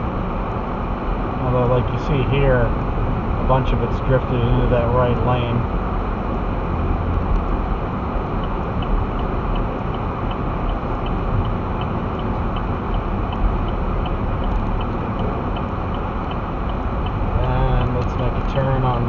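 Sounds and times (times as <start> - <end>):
vehicle road and engine rumble: 0.0 - 19.0
turn signal clicking: 7.3 - 19.0.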